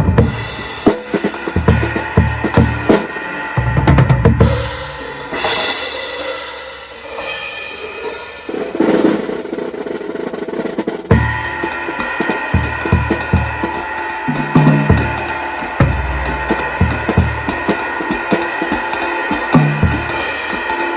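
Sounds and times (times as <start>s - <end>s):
bass drum kicks: 0.0s - 0.6s
cymbals washing: 0.0s - 20.9s
drum kit playing: 0.0s - 20.9s.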